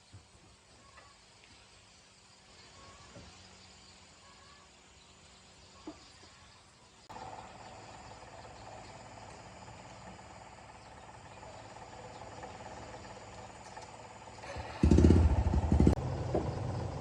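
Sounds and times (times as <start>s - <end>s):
engine idling: 7.0s - 17.0s.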